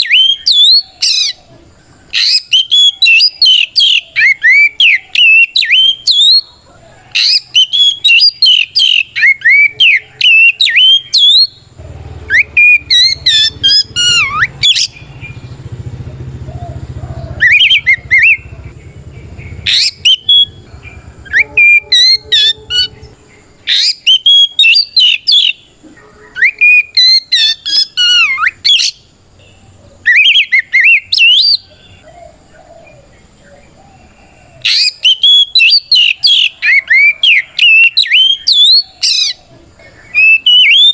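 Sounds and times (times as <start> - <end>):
bird singing whistled song: 0.0 - 15.7, 16.8 - 33.7, 34.6 - 40.9
low rumble: 13.2 - 23.7.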